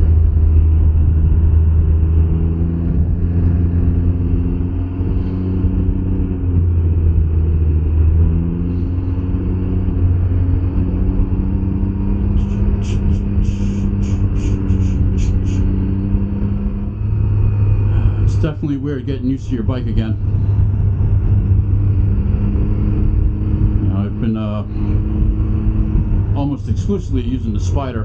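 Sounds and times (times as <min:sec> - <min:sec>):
motorcycle engine running: 0:00.0 - 0:28.0
road and wind noise: 0:00.0 - 0:28.0.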